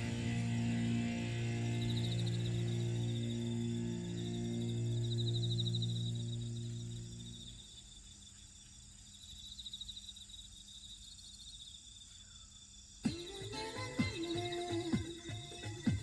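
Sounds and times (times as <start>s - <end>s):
music track: 0.0s - 7.3s, 13.1s - 16.0s
crickets chirping: 0.0s - 16.0s.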